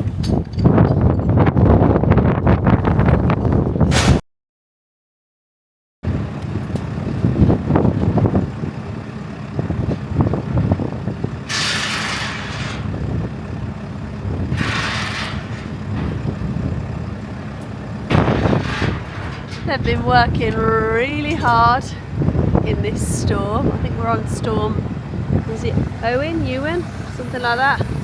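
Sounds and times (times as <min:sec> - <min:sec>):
diesel machinery running: 0:06.0 - 0:28.0
scattered knocks: 0:18.1 - 0:20.7.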